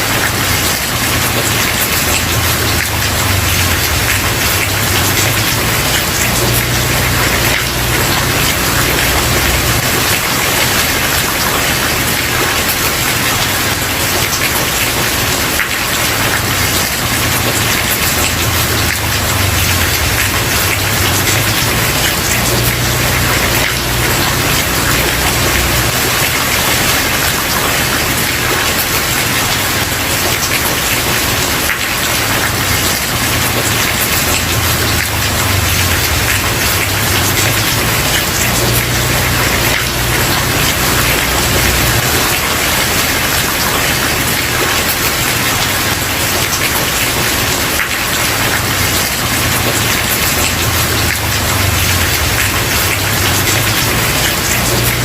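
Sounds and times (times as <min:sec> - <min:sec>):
rain on wooden porch: 0:00.0 - 0:55.0.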